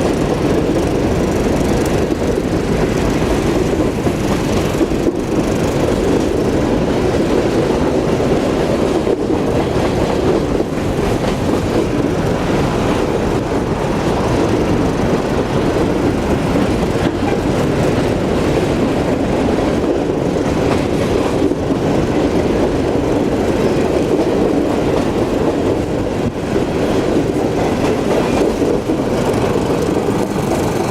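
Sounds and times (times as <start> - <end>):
train wheels rumbling on rail: 0.0 - 30.9.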